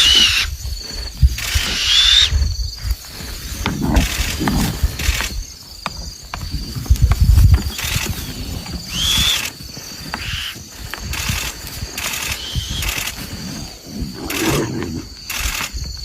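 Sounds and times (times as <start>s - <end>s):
animal high call: 0.0s - 0.6s, 1.4s - 2.4s
scattered clicks: 3.6s - 16.0s.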